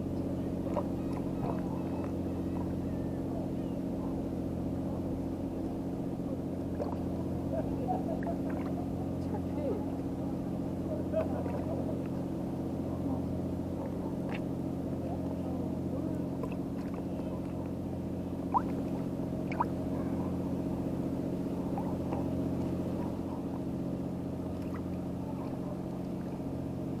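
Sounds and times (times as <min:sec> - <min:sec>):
boat engine idling: 0:00.0 - 0:27.0.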